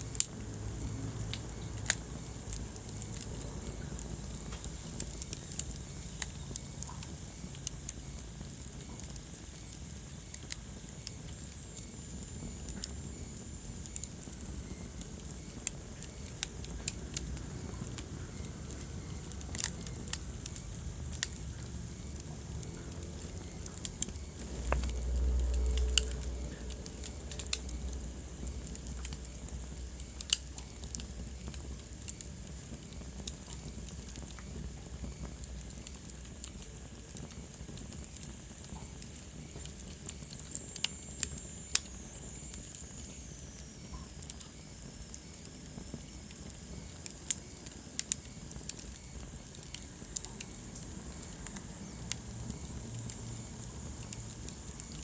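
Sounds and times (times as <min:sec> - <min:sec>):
low rumble of flames: 0:00.0 - 0:55.0
wood fire crackling and popping: 0:00.0 - 0:55.0.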